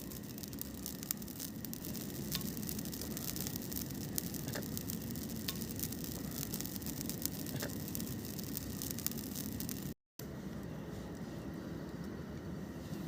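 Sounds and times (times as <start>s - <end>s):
campfire crackling and popping: 0.0s - 10.0s
steady hiss: 0.0s - 10.0s.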